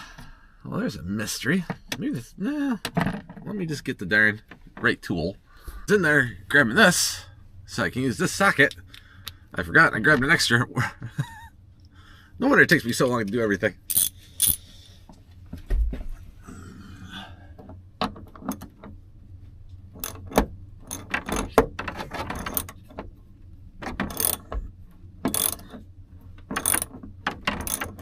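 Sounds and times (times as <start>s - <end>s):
socket wrench ratchet clicking: 13.9s - 14.6s, 20.0s - 21.5s, 24.1s - 24.5s, 25.3s - 25.8s, 26.5s - 26.9s, 27.5s - 28.0s.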